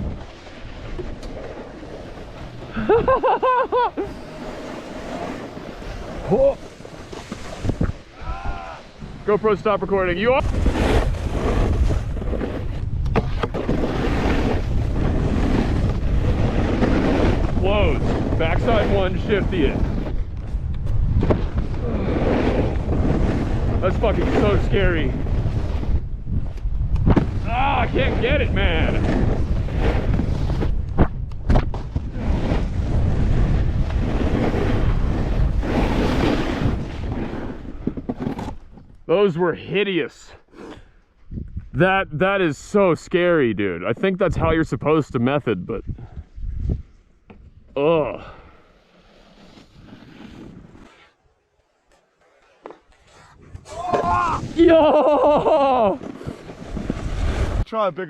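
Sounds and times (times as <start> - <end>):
snowboard sliding over snow: 0.0 - 26.6, 27.2 - 38.6, 47.8 - 57.8
wind buffeting microphone: 7.5 - 38.0, 41.2 - 41.8, 45.7 - 47.7.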